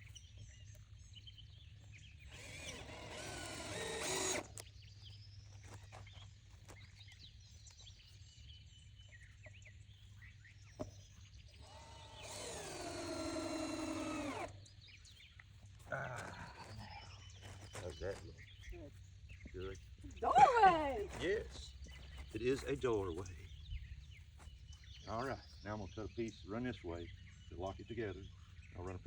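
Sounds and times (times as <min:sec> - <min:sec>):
power drill driving screws: 0:02.2 - 0:04.7, 0:11.5 - 0:14.6.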